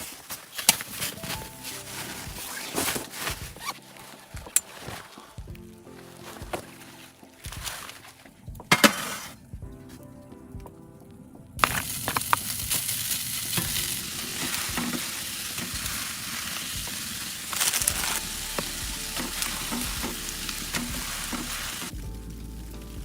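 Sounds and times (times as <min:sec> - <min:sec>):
food sizzling in a pan: 0:11.6 - 0:22.0.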